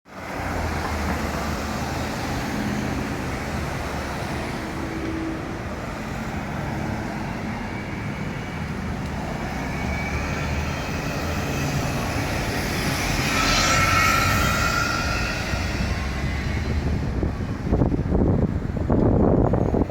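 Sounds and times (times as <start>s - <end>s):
city street traffic: 0.1s - 19.9s
high whine: 9.0s - 18.0s.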